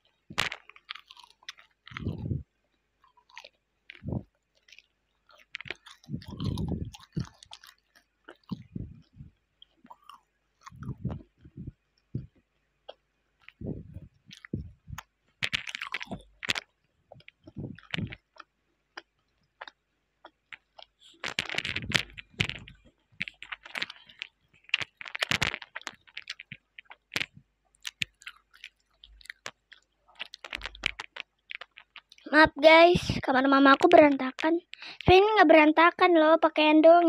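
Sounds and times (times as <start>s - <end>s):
close-up chewing: 0.0s - 32.4s.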